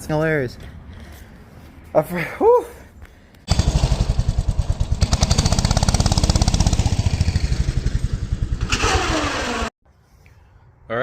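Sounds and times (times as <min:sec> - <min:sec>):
minibike engine chugging: 0:03.5 - 0:09.7.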